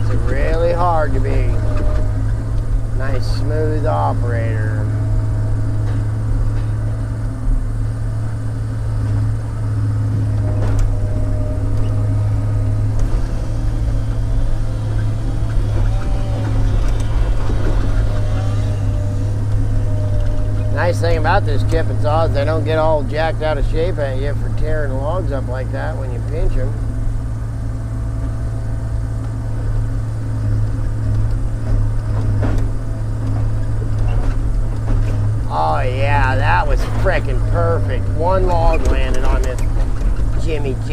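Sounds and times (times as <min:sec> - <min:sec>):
diesel engine running: 0:00.0 - 0:40.9
faint whine: 0:00.0 - 0:40.9.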